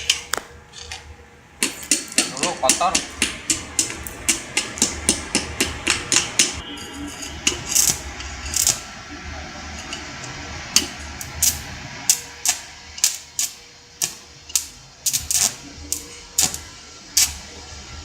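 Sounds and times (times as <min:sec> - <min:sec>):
hammer striking metal: 0:01.6 - 0:08.8.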